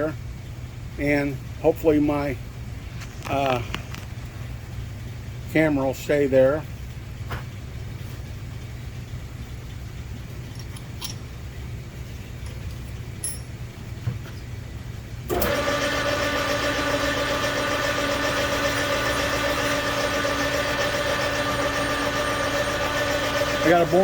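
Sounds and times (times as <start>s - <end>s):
metal lathe whining: 15.3s - 24.0s.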